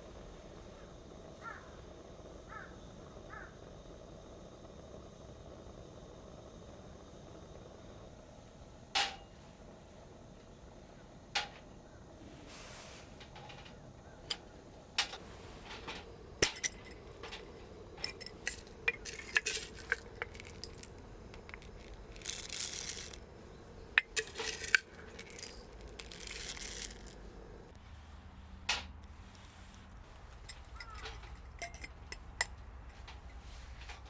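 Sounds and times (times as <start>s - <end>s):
metal and glass clinking: 15.6s - 27.7s, 30.4s - 33.4s.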